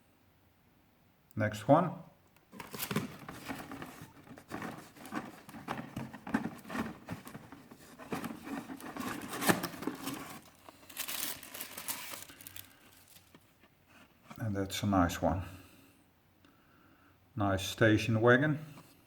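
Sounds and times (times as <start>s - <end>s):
plastic packaging crinkling: 2.5s - 13.6s.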